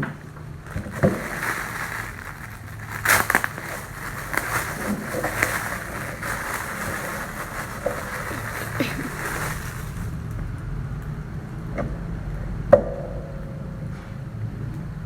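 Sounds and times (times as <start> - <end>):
jacket and packaging rustling: 0.6 - 10.2
loud crackles: 0.6 - 10.2.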